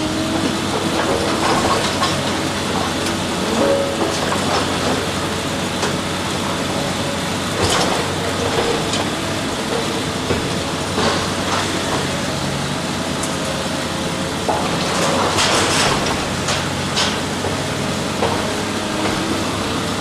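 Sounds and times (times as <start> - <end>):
heavy machinery rumbling: 0.0 - 20.0.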